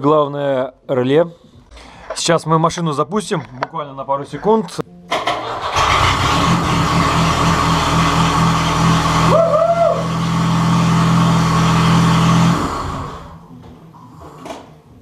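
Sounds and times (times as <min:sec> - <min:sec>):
car engine running: 0:05.7 - 0:13.4
man shouting: 0:09.3 - 0:10.1.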